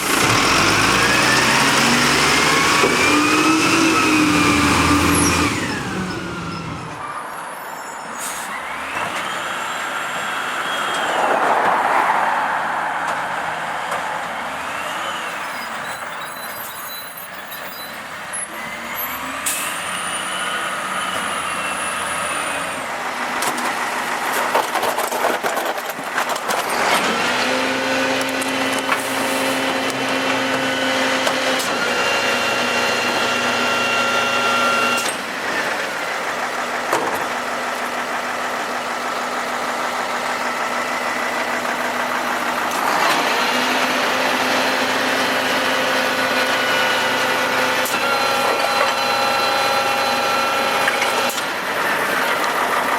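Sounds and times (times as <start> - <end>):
garbage truck engine running: 0.0 - 7.1, 20.6 - 52.9.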